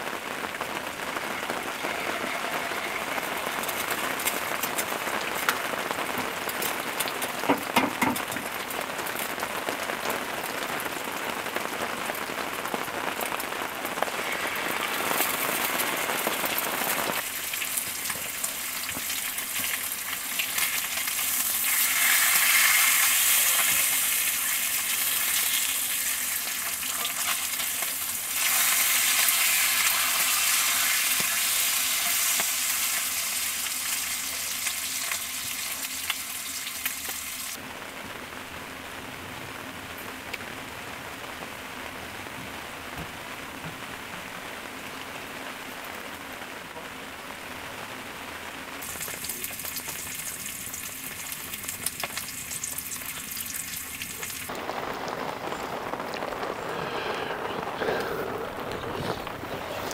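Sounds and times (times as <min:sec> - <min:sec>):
eggs and bacon sizzling: 0:00.0 - 0:37.7, 0:48.7 - 0:59.9.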